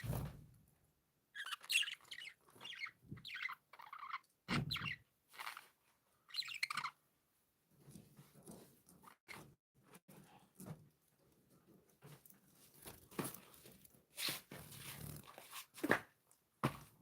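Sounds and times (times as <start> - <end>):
budgerigars chirping and warbling: 1.4 - 5.0, 6.3 - 7.0.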